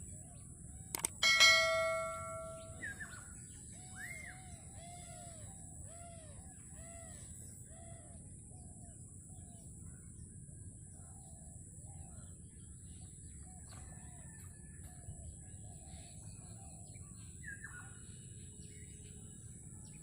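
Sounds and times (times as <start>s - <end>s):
bird calling: 1.0s - 3.1s
metallic bell-like strike: 1.0s - 3.1s.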